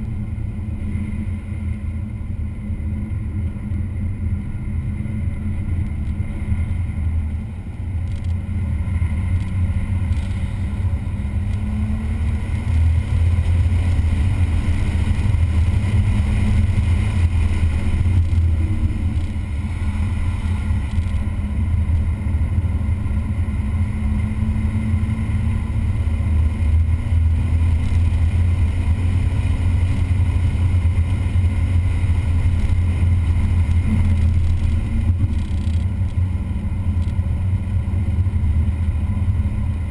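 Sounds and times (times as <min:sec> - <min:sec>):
engine revving through gears: 0:08.0 - 0:22.2.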